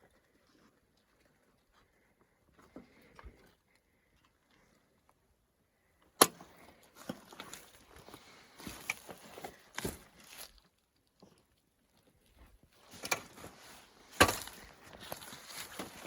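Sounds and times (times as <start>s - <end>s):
footsteps through brush: 6.7s - 11.0s, 12.3s - 16.0s
rustling: 6.7s - 16.0s.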